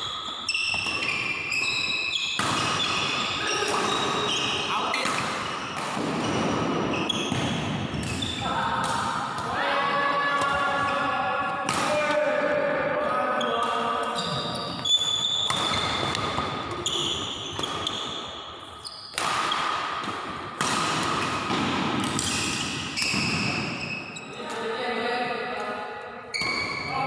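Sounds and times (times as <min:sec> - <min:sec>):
shoes squeaking on court: 0:00.0 - 0:08.4, 0:13.4 - 0:19.7, 0:21.2 - 0:24.6, 0:26.3 - 0:27.0
rackets hitting shuttlecock: 0:00.1 - 0:09.6, 0:10.3 - 0:12.4, 0:13.5 - 0:24.7, 0:25.5 - 0:27.0
players' voices: 0:03.3 - 0:17.0, 0:24.2 - 0:27.0.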